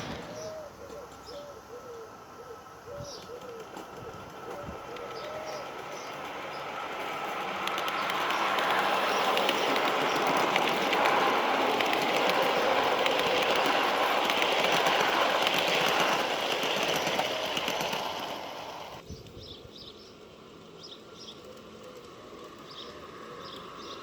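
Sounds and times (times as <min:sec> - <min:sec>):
model train clattering on track: 0:00.0 - 0:00.6, 0:04.4 - 0:19.0
birds chirping: 0:00.0 - 0:21.5.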